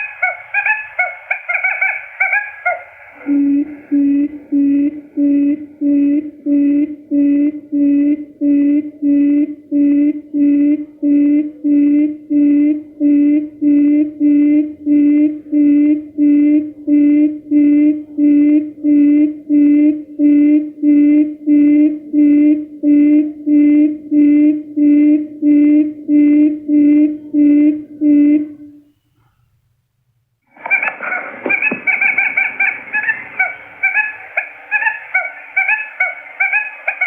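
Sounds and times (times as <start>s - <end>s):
quail call hooting: 0.0s - 6.4s, 30.6s - 37.0s.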